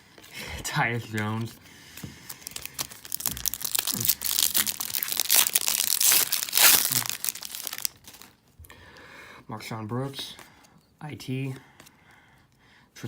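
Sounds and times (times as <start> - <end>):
plastic wrapper tearing and crinkling: 2.1 - 8.4.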